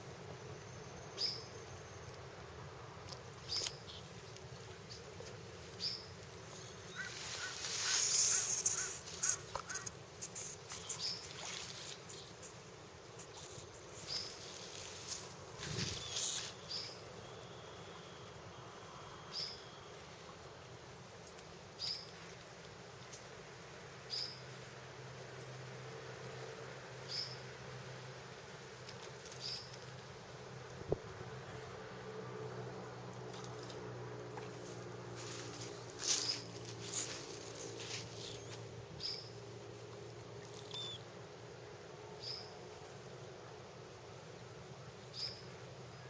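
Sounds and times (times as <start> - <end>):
harsh rasping animal call: 6.9 - 10.0.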